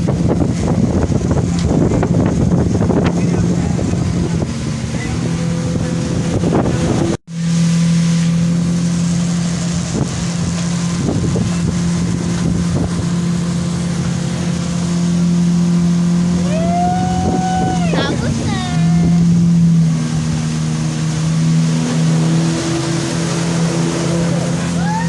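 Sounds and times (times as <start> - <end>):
wind noise on microphone: 0.0 - 7.4, 9.6 - 14.5, 16.4 - 19.5
motorboat engine running: 0.0 - 25.0.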